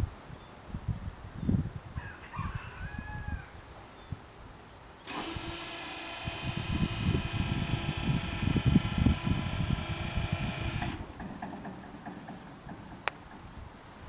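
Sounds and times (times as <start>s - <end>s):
low gusty rumble: 5.2s - 13.8s.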